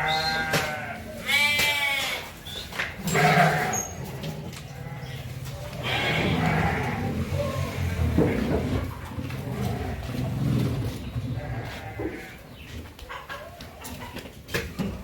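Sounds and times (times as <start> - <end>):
sheep bleating: 0.0 - 2.3, 3.0 - 7.2, 11.4 - 12.4.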